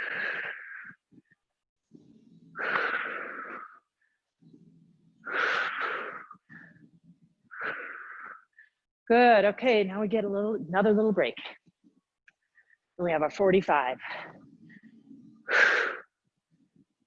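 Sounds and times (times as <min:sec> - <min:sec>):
woman breathing hard: 0:00.0 - 0:01.5, 0:02.5 - 0:04.3, 0:05.2 - 0:08.9, 0:14.0 - 0:16.2.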